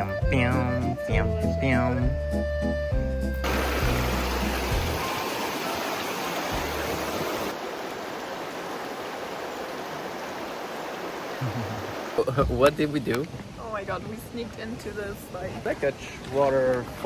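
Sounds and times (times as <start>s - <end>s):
background music with bass: 0.0s - 5.1s
river water rushing: 3.4s - 14.3s.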